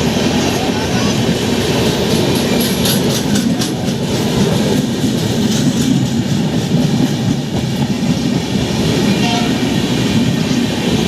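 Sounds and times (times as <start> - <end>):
train wheels rumbling on rails: 0.0 - 11.0
clacks over rail joints: 1.8 - 9.6.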